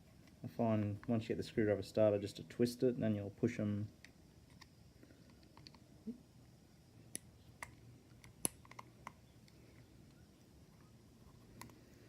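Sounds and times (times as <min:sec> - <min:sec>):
screwdriver clicks and taps: 0:07.2 - 0:09.2.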